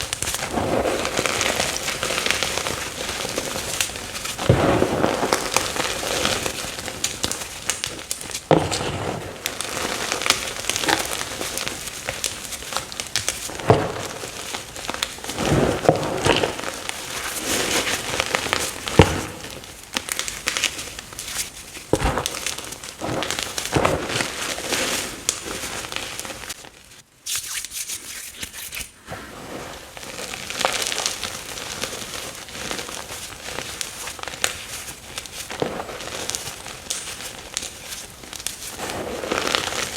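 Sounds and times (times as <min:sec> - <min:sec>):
chalk being crushed: 0:00.0 - 0:26.6.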